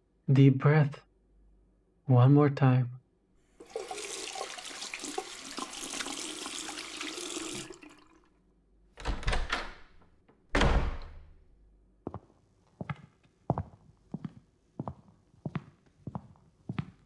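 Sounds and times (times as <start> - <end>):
tap running into sink: 3.6 - 8.2.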